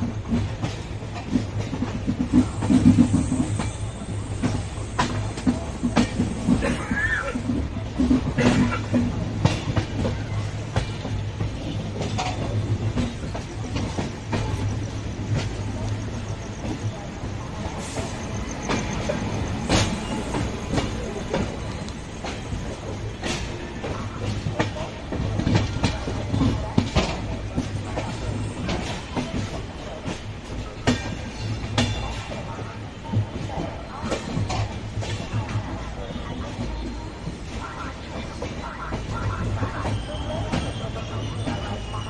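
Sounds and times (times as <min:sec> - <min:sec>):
train rumble: 0:00.0 - 0:42.0
wheels clacking over rail joints: 0:00.0 - 0:42.0
faint wheel squeal: 0:39.2 - 0:42.0.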